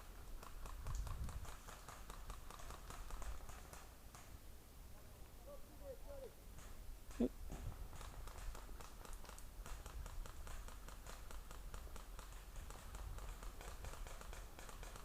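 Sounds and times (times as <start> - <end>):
wind on microphone: 0.8 - 1.6.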